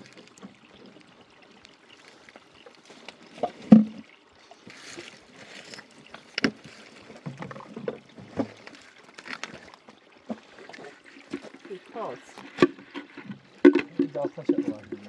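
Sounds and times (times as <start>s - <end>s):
knocks and thumps of handling: 11.3s - 15.0s.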